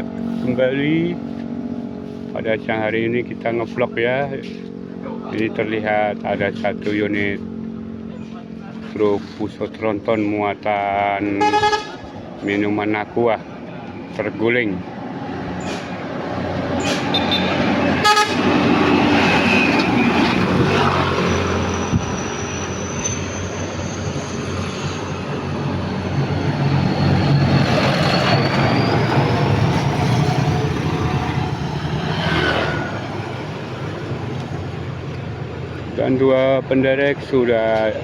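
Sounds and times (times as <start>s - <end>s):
traffic passing close by: 0.0s - 38.0s
vehicle horn toots: 11.4s - 12.2s, 17.1s - 18.6s.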